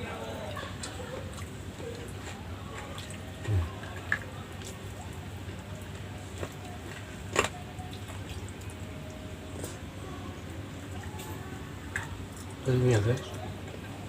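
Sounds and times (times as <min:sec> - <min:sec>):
person chewing food: 0:01.8 - 0:08.7.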